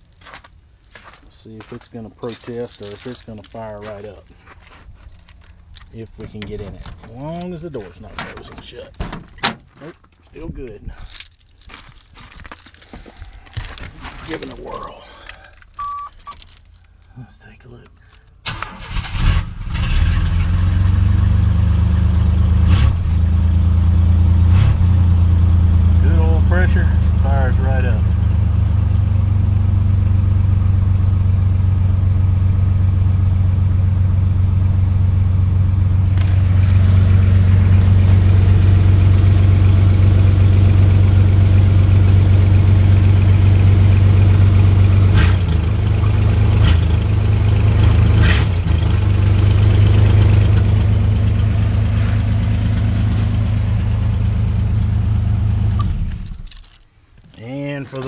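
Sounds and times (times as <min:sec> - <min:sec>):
pickup engine idling: 0:25.2 - 0:56.0.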